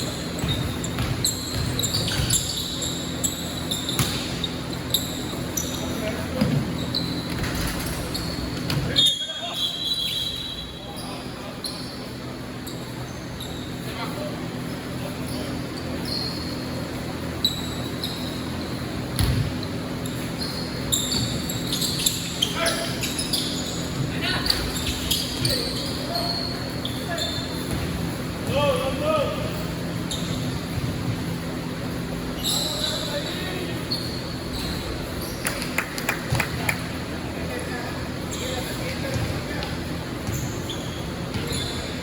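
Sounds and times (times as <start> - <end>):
basketball bouncing on court: 0.0 - 5.6, 6.4 - 9.0, 19.0 - 20.3, 21.0 - 22.4, 27.5 - 28.7, 30.1 - 31.7, 39.0 - 42.0
sneakers squeaking: 0.0 - 42.0
basketball bouncing: 0.3 - 2.6, 3.8 - 4.4, 8.6 - 8.9, 19.2 - 19.7, 27.6 - 28.6, 41.3 - 41.7.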